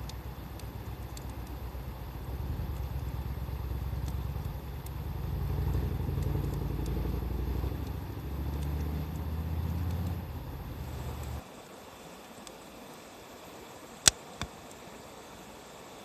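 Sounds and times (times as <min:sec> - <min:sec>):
vehicle engine rumbling: 0:00.0 - 0:11.4
wood fire crackling: 0:00.0 - 0:11.4.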